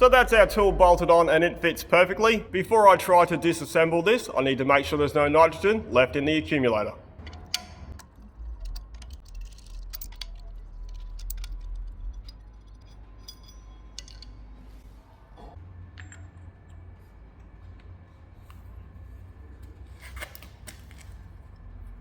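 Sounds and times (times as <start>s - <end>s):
low workshop hum: 0.0s - 22.0s
metallic clicks of hand tools: 7.2s - 14.4s.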